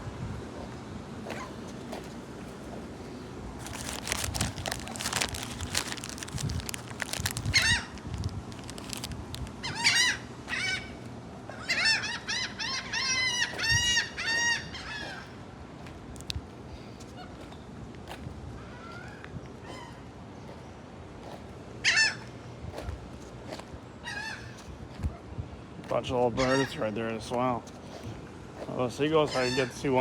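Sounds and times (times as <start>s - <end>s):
seagulls calling: 3.0s - 8.0s, 8.6s - 16.0s, 18.6s - 30.0s
crackling noise: 3.6s - 9.6s.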